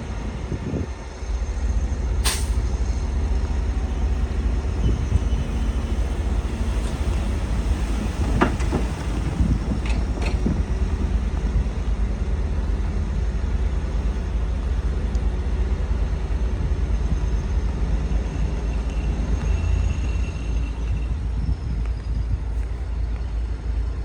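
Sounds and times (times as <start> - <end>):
diesel machinery engine rumbling: 0.0 - 24.0.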